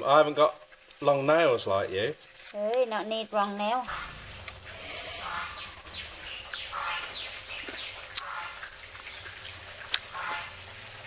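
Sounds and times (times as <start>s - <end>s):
birds chirping: 3.9s - 10.7s.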